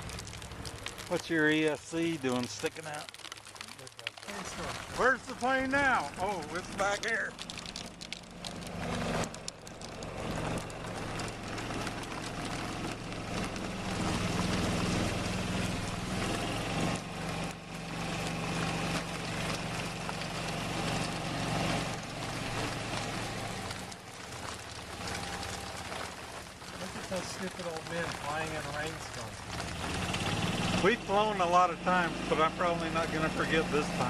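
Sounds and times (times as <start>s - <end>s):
rain hissing: 0.0s - 34.0s
golf cart motor humming: 5.0s - 27.2s.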